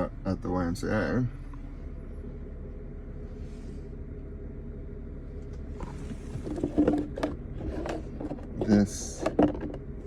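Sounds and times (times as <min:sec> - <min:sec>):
faint continuous hum: 0:00.0 - 0:10.0
steady low rumble: 0:00.0 - 0:10.0
rustling and handling noise: 0:05.5 - 0:09.9.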